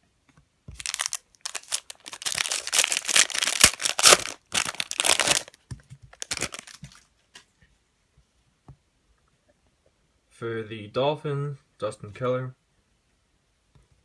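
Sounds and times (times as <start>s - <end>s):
cards rustling: 0.7s - 7.5s
wrapper tearing and crinkling: 0.8s - 7.1s.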